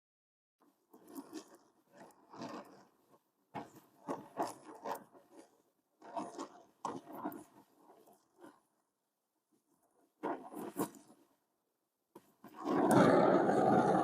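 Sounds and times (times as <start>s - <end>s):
torch flame roaring and crackling: 12.5s - 14.0s.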